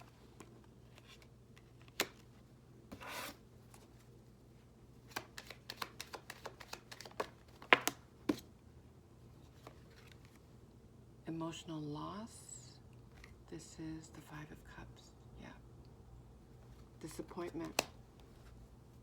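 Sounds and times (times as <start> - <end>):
cards being shuffled: 0.0 - 4.1, 5.0 - 8.5, 9.4 - 10.4, 17.1 - 18.6.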